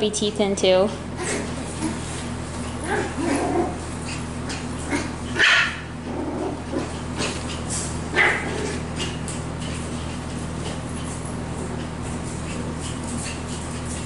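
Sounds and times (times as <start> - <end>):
puppies barking: 1.1 - 10.4.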